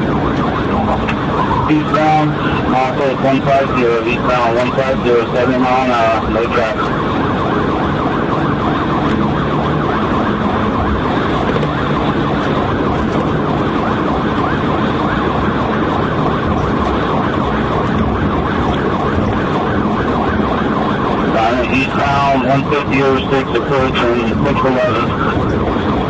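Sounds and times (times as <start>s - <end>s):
engine and road rumble: 0.0s - 26.0s
police siren yelping: 0.0s - 26.0s.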